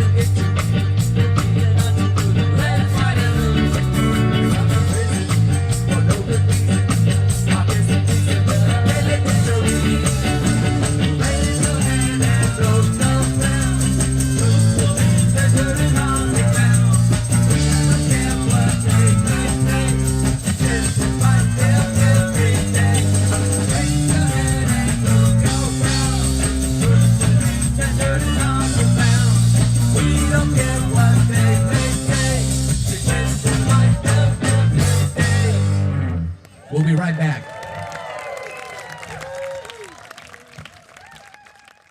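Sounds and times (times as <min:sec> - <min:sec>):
electric guitar: 0:00.0 - 0:36.4
heavy bassline: 0:00.0 - 0:36.4
live ska reggae band playing: 0:00.0 - 0:36.4.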